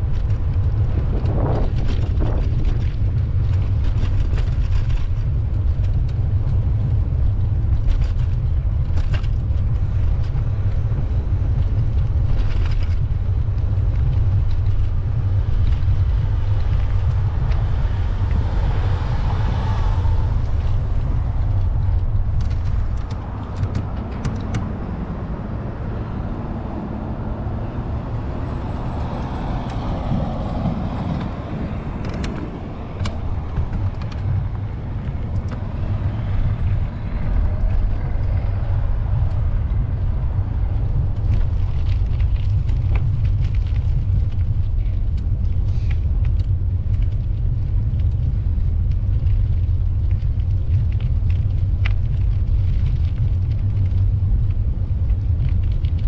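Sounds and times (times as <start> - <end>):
city street traffic: 0.0 - 56.0
wind rumbling on microphone: 0.0 - 56.0
vehicle passing: 14.4 - 41.6.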